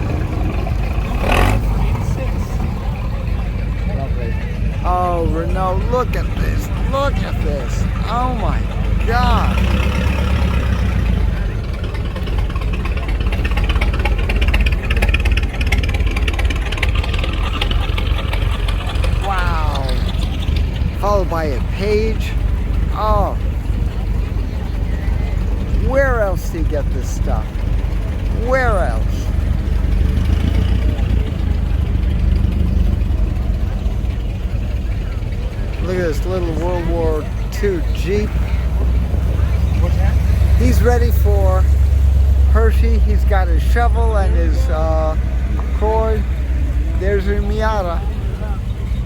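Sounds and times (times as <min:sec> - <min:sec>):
old car engine driving past: 0:00.0 - 0:49.0.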